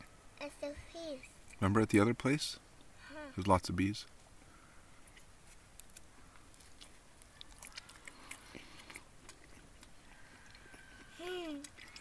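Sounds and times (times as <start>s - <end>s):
child chewing: 4.2s - 12.0s.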